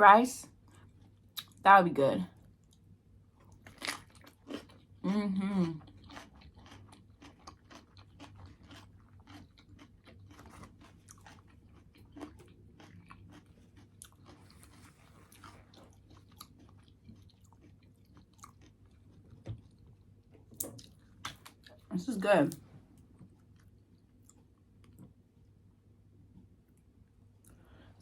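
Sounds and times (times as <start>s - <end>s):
soft crunches of chewing: 0.5s - 1.5s, 2.5s - 21.9s, 22.5s - 25.2s
close chewing with mouth clicks: 3.4s - 21.9s.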